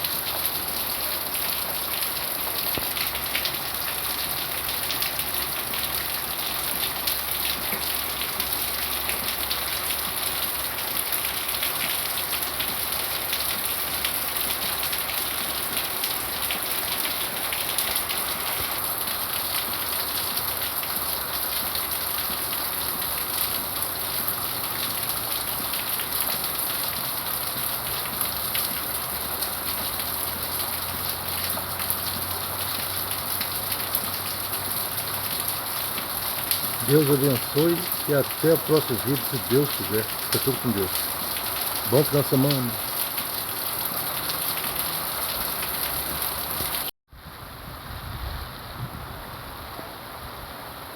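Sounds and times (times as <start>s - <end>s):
heavy rain pattering: 0.0s - 46.9s.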